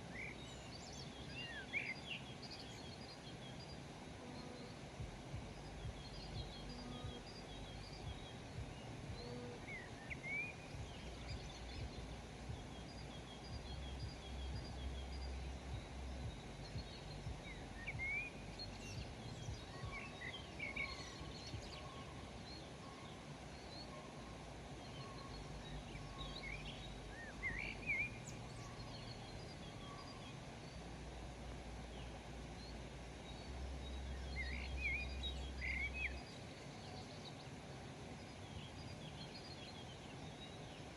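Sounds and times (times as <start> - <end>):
wild birds chirping and calling: 0.0 - 31.6
low outdoor rumble: 0.0 - 40.9.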